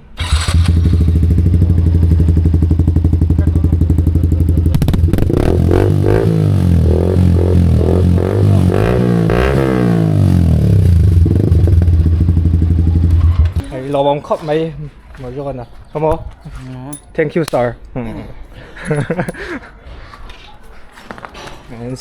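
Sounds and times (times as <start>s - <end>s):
motorcycle engine idling and revving: 0.2s - 13.8s.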